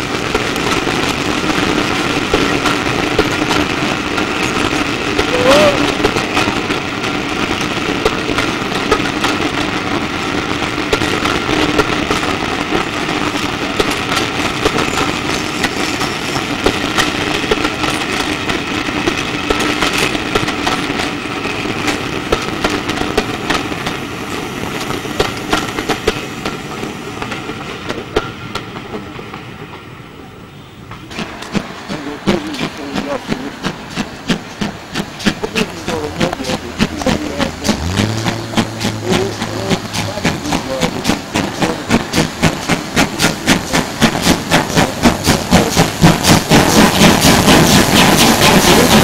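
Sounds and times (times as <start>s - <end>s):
train running noise: 0.0s - 49.0s
wheels clicking over rail joints: 30.9s - 49.0s.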